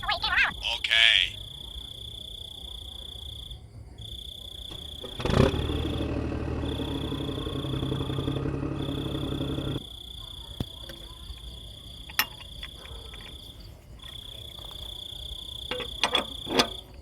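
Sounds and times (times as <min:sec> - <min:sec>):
high insect trill: 0:00.4 - 0:17.0
small motor running: 0:04.7 - 0:09.8.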